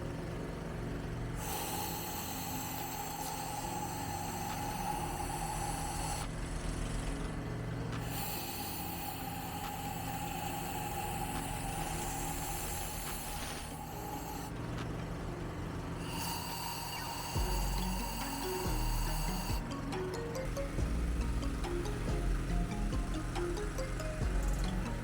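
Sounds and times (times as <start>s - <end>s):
compressor hum: 0.0s - 25.0s
air blow gun hissing: 1.4s - 6.3s, 8.0s - 14.5s, 16.0s - 19.6s.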